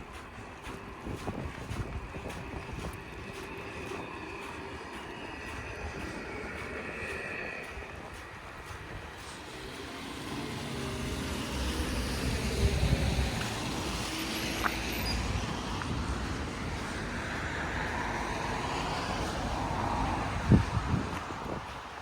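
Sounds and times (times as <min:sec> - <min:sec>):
car driving past: 0:03.3 - 0:20.9.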